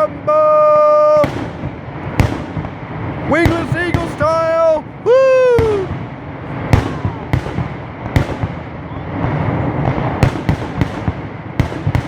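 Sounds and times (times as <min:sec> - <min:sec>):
firework crackle: 0:00.0 - 0:12.0
firework shells bursting: 0:01.2 - 0:05.0, 0:05.6 - 0:08.6, 0:09.2 - 0:12.0.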